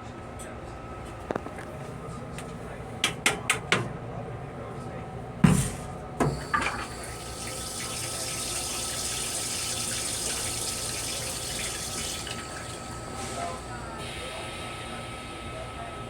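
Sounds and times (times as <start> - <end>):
sink faucet running: 6.2 - 13.7.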